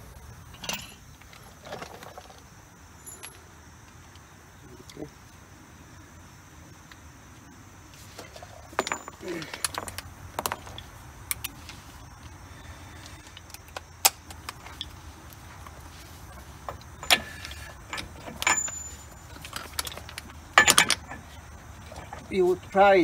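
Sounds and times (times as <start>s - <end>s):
metal tools clinking and knocking: 0.5s - 1.1s, 3.0s - 3.5s, 8.2s - 11.5s, 16.3s - 22.1s.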